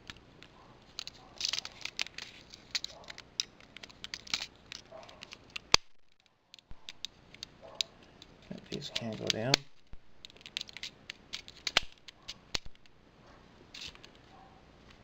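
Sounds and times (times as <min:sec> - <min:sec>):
plastic piece snapping: 0:00.0 - 0:12.9
plastic toy parts clicking: 0:00.0 - 0:12.9.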